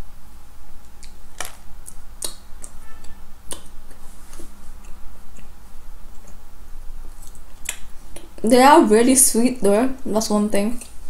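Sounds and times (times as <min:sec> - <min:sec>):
person chewing: 0:00.9 - 0:06.4, 0:07.1 - 0:08.4
wet mouth clicks and smacks: 0:01.0 - 0:02.8, 0:03.5 - 0:04.0, 0:07.2 - 0:08.4.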